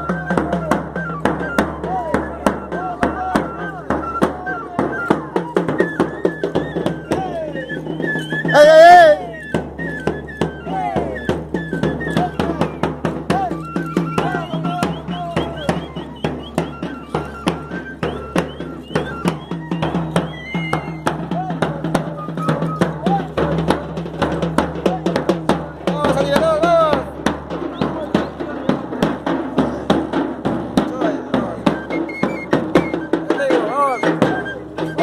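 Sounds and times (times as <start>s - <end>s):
high piping melody: 0.0s - 23.4s, 31.2s - 35.0s
drum beating fast rhythm: 0.0s - 35.0s
voices calling: 0.0s - 35.0s.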